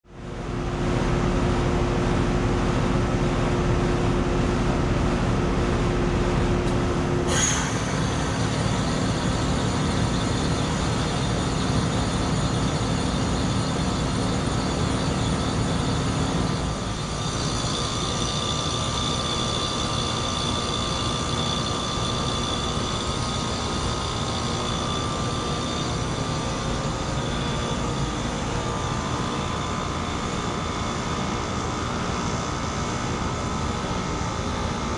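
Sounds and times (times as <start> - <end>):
heat pump compressors humming: 0.1 - 34.9
high-pitched whines: 7.2 - 30.7.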